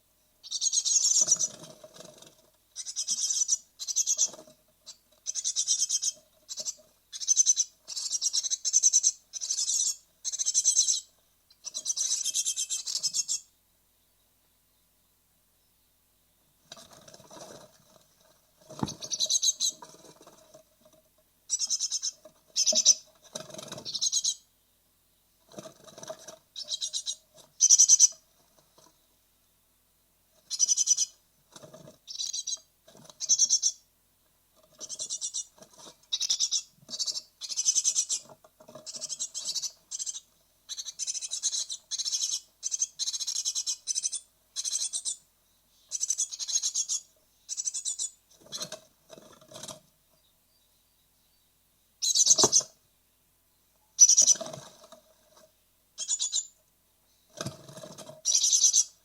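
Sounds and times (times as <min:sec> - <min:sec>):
nestlings calling high-pitched: 0:00.4 - 0:13.5, 0:18.7 - 0:20.0, 0:21.5 - 0:23.1, 0:23.7 - 0:24.5, 0:26.6 - 0:28.2, 0:30.4 - 0:31.2, 0:32.1 - 0:33.8, 0:34.7 - 0:45.2, 0:45.8 - 0:48.7, 0:52.0 - 0:52.8, 0:54.0 - 0:54.6, 0:56.0 - 0:56.5, 0:57.9 - 0:59.0.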